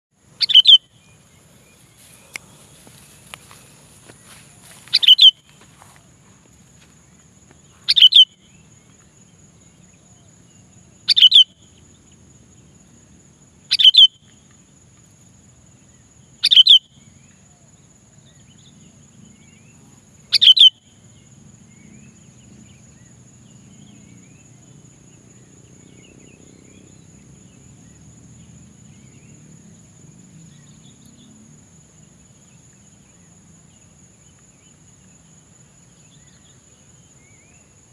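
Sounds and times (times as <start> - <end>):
bulbul giving falling calls: 0.4 - 6.0, 7.8 - 8.4, 11.1 - 11.4, 13.7 - 14.1, 20.3 - 20.7.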